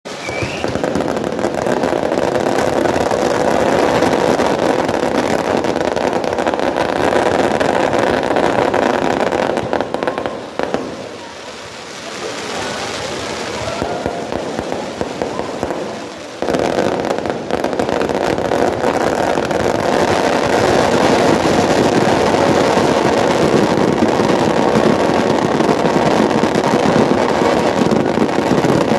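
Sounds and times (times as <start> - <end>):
bonfire crackling and popping: 0.1 - 28.9.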